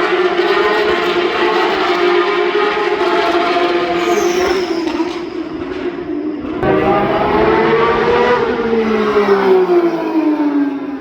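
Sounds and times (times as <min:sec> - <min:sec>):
racing car engine high revs: 0:06.6 - 0:10.2.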